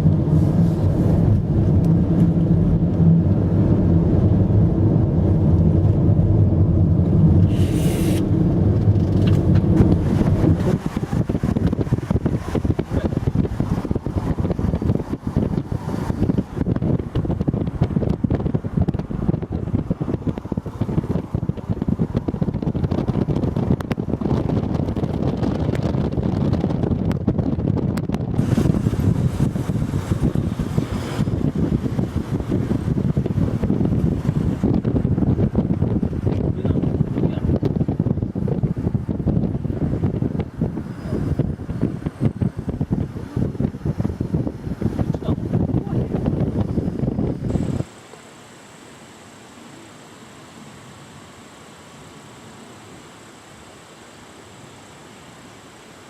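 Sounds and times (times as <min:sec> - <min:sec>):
wind buffeting microphone: 0:00.0 - 0:48.0
car engine and road noise: 0:00.0 - 0:56.0
brief hiss: 0:07.5 - 0:08.3.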